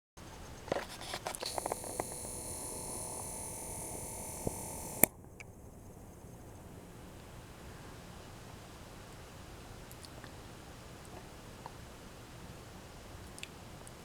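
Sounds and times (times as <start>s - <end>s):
high thin camera whine: 0.7s - 5.1s
sharp camera click: 0.8s - 5.1s.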